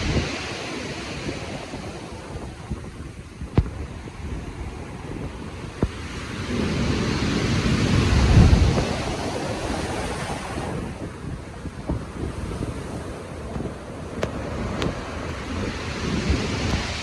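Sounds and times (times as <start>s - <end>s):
ocean waves breaking: 0.0s - 17.0s
wind buffeting microphone: 0.0s - 17.0s.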